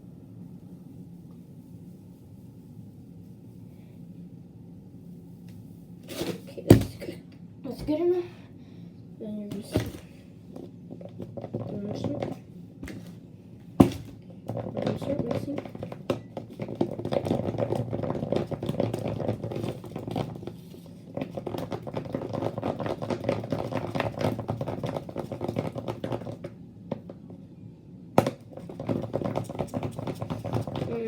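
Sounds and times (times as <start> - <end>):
slime stirred crackling: 13.8 - 26.5, 28.4 - 31.0.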